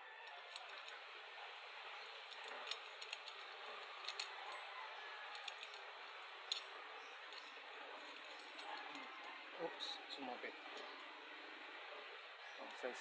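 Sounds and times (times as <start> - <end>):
small metal parts clicking: 0.2 - 1.0, 2.0 - 9.3.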